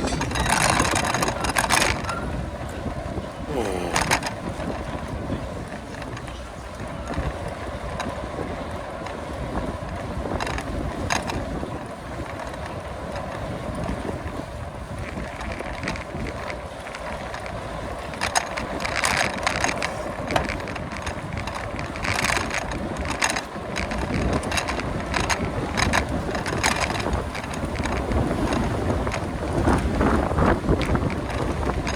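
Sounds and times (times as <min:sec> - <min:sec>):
bicycle clicking and rattling: 0:00.0 - 0:31.9
wind rushing over microphone: 0:18.6 - 0:31.9.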